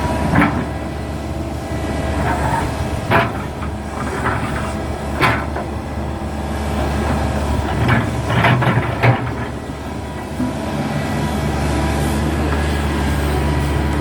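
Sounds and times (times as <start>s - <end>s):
excavator diesel engine running: 0.0s - 14.0s
metallic clanks and knocks: 0.2s - 0.8s, 2.2s - 5.8s, 7.0s - 10.6s.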